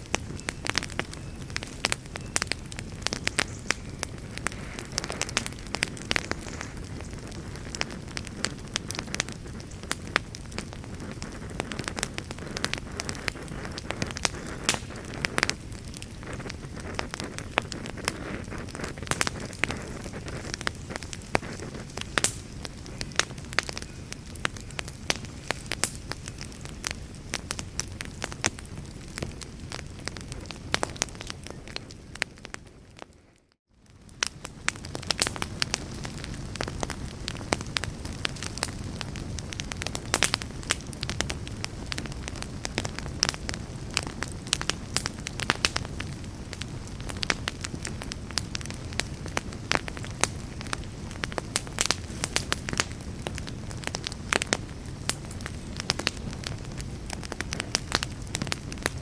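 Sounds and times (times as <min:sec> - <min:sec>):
flames rushing: 0:00.0 - 0:33.2, 0:33.9 - 0:59.0
burning wood crackling: 0:00.0 - 0:59.0.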